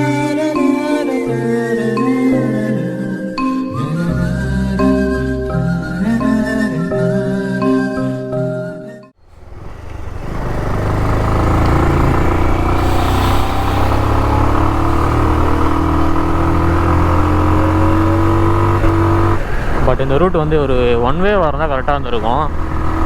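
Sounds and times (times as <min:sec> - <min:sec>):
music: 0:00.0 - 0:09.2
motorcycle engine climbing: 0:09.2 - 0:23.0.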